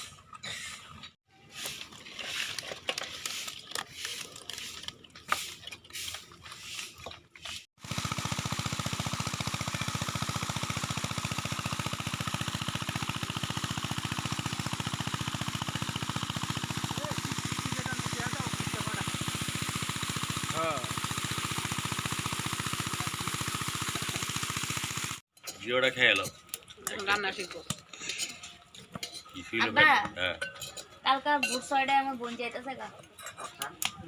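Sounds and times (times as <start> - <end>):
scraping and knocking handling noises: 0.0 - 7.6
engine running with fast pulse: 7.8 - 25.2.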